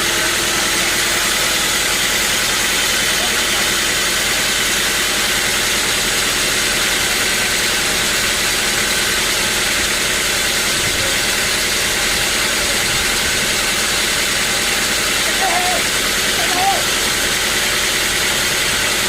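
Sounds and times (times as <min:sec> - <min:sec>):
band sawmill running: 0:00.0 - 0:19.0.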